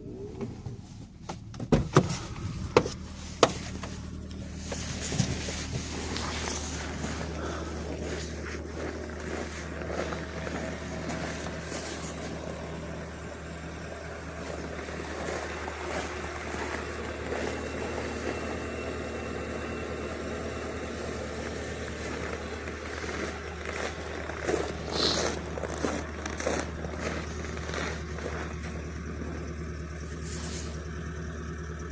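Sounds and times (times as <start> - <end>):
vehicle engine idling: 0.0 - 31.9
scraping and crunching: 2.0 - 30.9.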